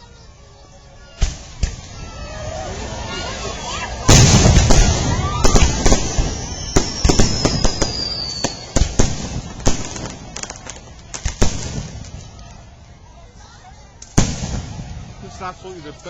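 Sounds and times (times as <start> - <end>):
falling firework whistle: 1.0 - 12.3
firework pops and crackles: 1.2 - 2.0, 4.0 - 12.7, 13.9 - 15.4
firework bang: 1.2 - 2.4, 3.9 - 12.4, 14.1 - 15.4.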